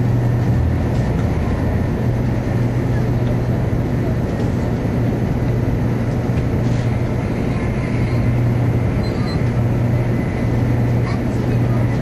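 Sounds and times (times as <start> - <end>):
train interior running noise: 0.0 - 12.0.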